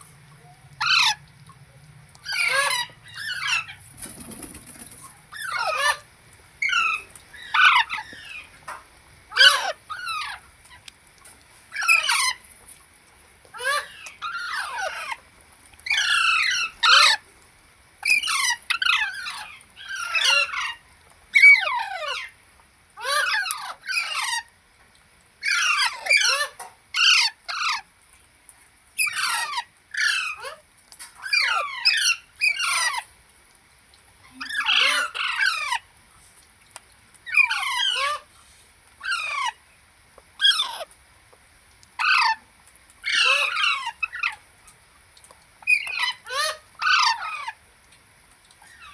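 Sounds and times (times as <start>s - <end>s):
parrot squawking: 0.8s - 1.2s, 2.2s - 3.8s, 5.3s - 8.1s, 18.0s - 20.7s, 29.0s - 30.6s, 31.2s - 33.1s, 34.4s - 35.8s, 37.3s - 38.3s, 39.0s - 39.6s, 40.4s - 40.9s, 42.0s - 42.4s, 43.0s - 44.4s, 45.6s - 47.6s.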